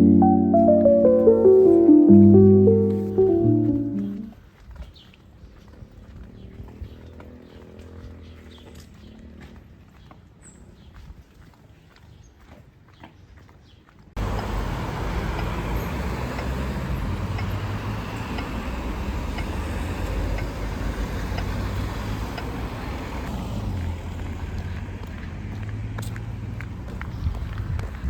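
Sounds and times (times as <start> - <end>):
road traffic: 0.0 - 4.4, 5.8 - 9.8, 14.2 - 28.0
vehicle engine running: 14.2 - 27.5.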